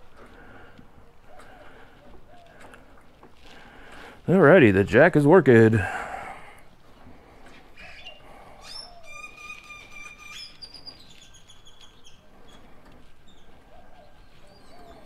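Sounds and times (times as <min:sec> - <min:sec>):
faint birdsong chirps and whistles: 0:07.8 - 0:15.0.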